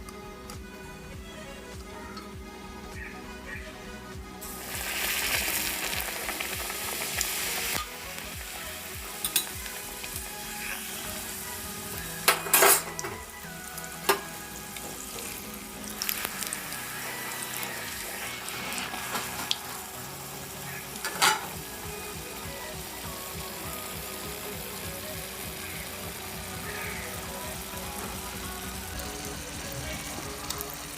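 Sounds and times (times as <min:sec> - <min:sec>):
dough sizzling in hot oil: 0:04.4 - 0:30.9
utensil clinking on pan: 0:12.3 - 0:13.2, 0:21.0 - 0:21.5.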